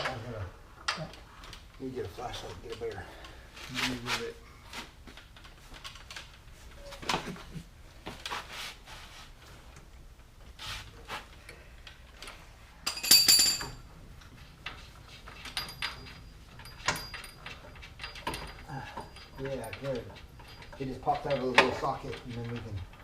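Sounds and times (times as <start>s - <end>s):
hand tools clinking on metal: 12.8s - 13.8s, 15.3s - 23.0s.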